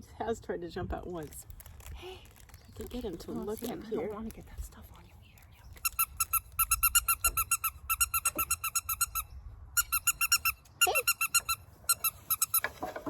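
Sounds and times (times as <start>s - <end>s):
squeaker toy squeaking: 5.8s - 12.8s.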